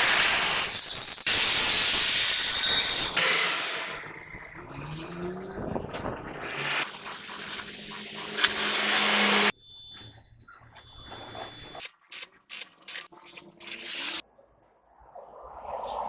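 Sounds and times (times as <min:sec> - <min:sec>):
loud steady hiss: 0:00.0 - 0:03.8.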